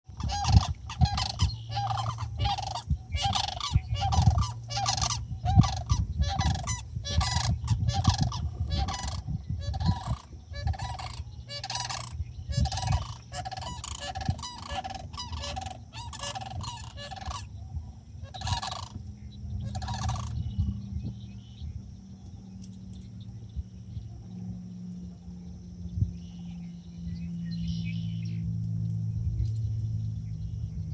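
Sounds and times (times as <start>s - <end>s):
cranes rattling cries: 0.1s - 30.9s
high insect trill: 0.1s - 30.9s.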